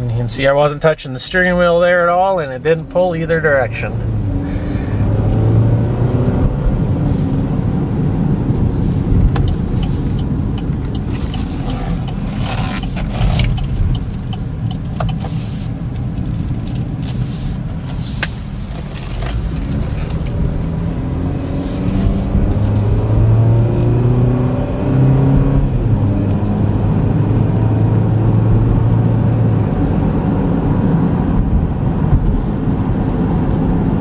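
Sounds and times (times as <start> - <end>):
engine and tyre road rumble: 0.0 - 34.0
light ticks: 12.8 - 16.8.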